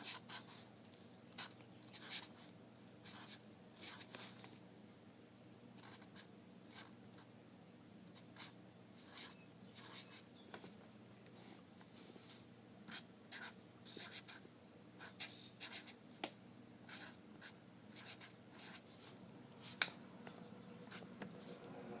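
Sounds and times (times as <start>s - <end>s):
faint low hum: 0.0s - 22.0s
pencil scratching on paper: 8.2s - 10.3s, 16.9s - 19.8s.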